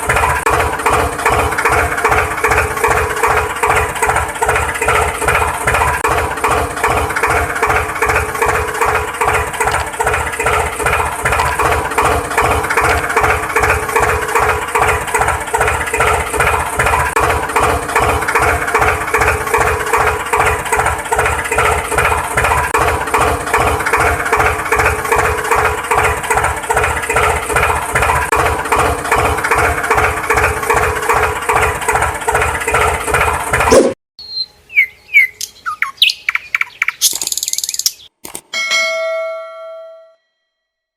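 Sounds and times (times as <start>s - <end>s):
engine idling: 0.0s - 33.9s.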